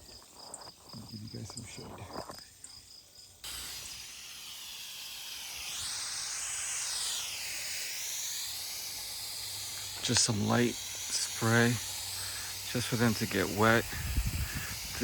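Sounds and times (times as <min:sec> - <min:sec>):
hose nozzle spraying mist: 0:03.4 - 0:15.0.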